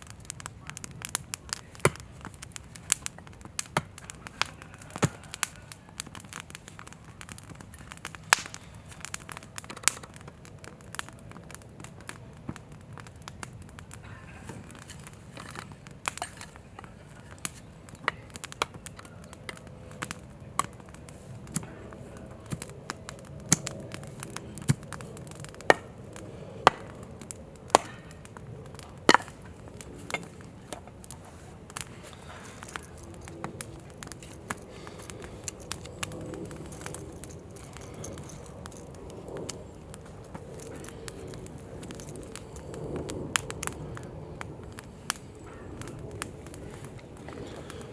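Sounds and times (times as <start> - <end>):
campfire crackling and popping: 0.0 - 47.9.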